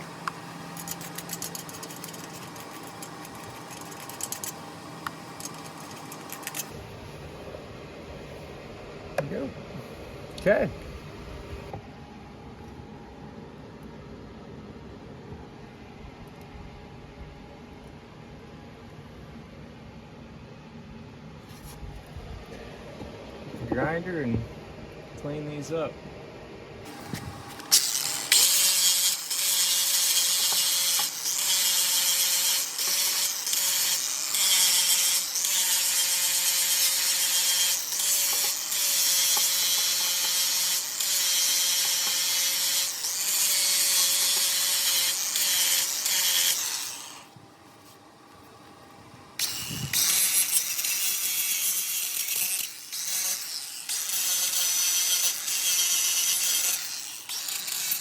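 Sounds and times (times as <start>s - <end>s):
angle grinder on metal: 0.0s - 6.8s, 26.9s - 47.3s, 49.4s - 58.0s.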